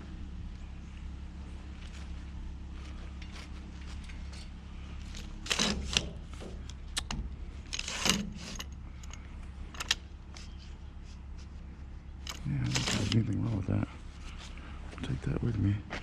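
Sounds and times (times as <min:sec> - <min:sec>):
steady low hum: 0:00.0 - 0:16.0
items rattling and clattering: 0:12.2 - 0:13.3.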